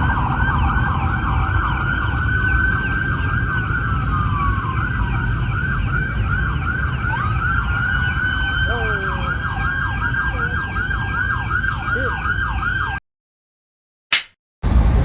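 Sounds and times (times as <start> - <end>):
emergency sirens yelping: 0.0 - 13.0
steady low rumble: 14.6 - 15.0.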